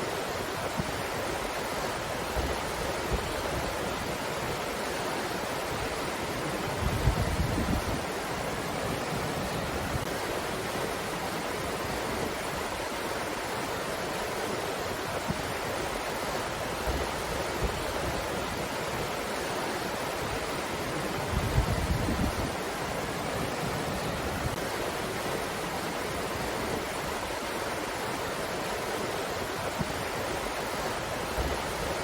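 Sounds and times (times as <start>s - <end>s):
wind gusts buffeting microphone: 5.6s - 10.3s, 20.2s - 28.2s.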